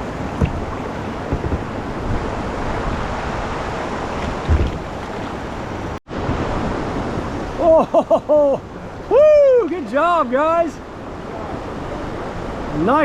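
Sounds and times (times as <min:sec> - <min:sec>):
low thumps: 0:00.0 - 0:02.3, 0:04.3 - 0:05.4
wind buffeting microphone: 0:00.0 - 0:07.6
river water rushing over rapids: 0:00.0 - 0:07.8.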